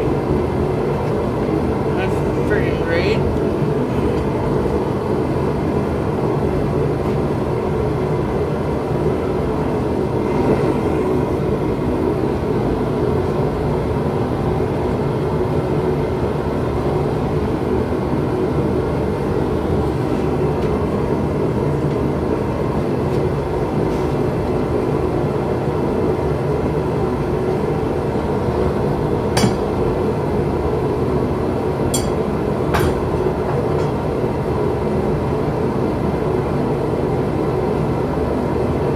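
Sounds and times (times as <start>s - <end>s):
forge burner rushing: 0.0s - 36.0s.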